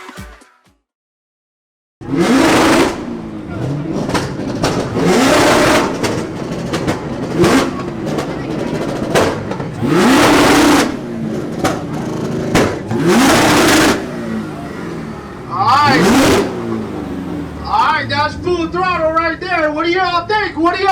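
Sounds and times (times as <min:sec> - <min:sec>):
car engines revving hard: 0:02.0 - 0:20.9.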